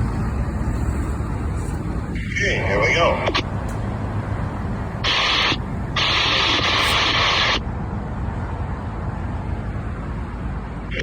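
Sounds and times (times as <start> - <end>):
radio static with tone: 2.2 - 3.6, 5.0 - 7.6.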